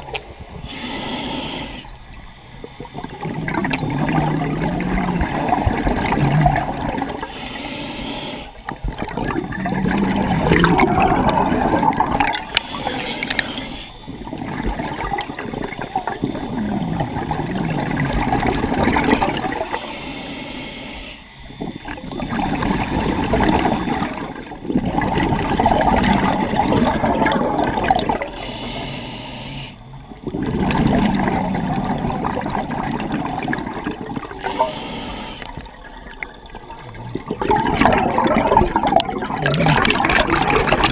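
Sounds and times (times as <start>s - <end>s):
diver breathing through regulator: 0.4s - 8.8s, 9.6s - 14.4s, 18.6s - 36.4s
gurgling exhaled bubbles: 2.6s - 7.4s, 8.6s - 19.9s, 21.5s - 28.6s, 29.8s - 40.9s.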